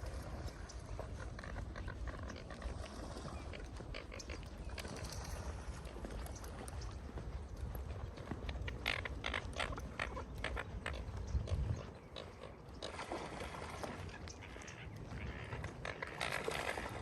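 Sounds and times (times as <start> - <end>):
footsteps walking: 0.5 - 12.5.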